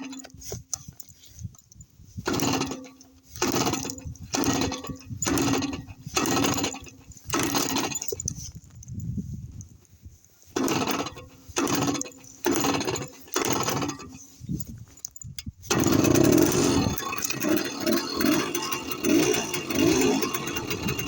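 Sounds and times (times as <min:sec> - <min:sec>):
moped two-stroke engine: 0:02.2 - 0:08.3, 0:10.6 - 0:14.4, 0:15.7 - 0:21.0.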